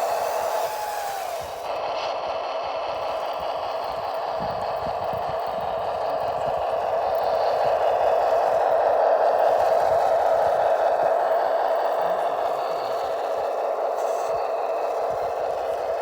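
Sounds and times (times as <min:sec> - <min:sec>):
simulated diesel engine running: 0:00.0 - 0:16.0.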